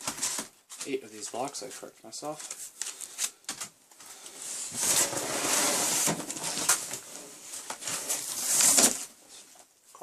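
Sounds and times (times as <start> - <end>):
cardboard rustling and scraping: 0.0 - 1.5, 4.4 - 9.4.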